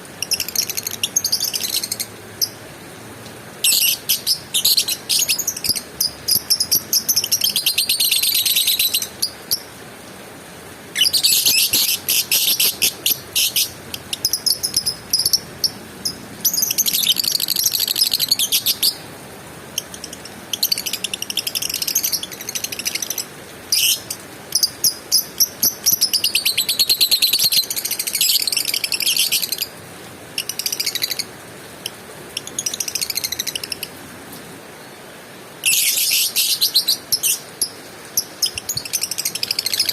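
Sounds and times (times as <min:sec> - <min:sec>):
lovebird chattering: 0:03.6 - 0:09.7, 0:11.0 - 0:19.0.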